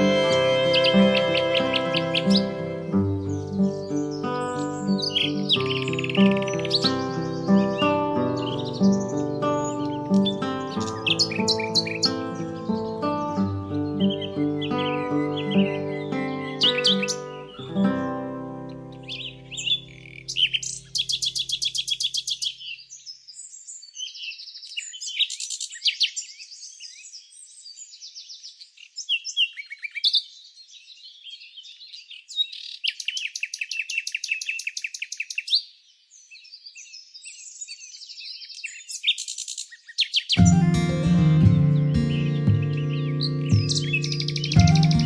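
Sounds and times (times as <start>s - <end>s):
guitar music: 0.0s - 21.5s, 40.4s - 45.0s
songbirds chirping and singing: 0.0s - 45.0s.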